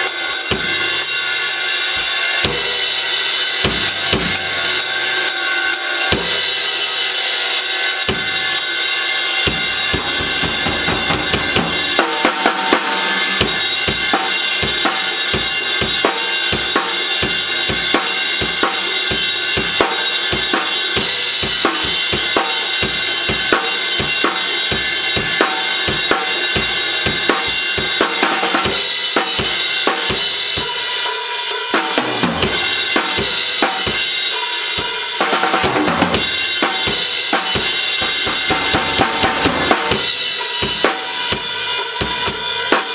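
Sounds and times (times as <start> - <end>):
cymbals: 0.0 - 42.9
bass drum strokes: 9.5 - 13.8, 38.2 - 39.9.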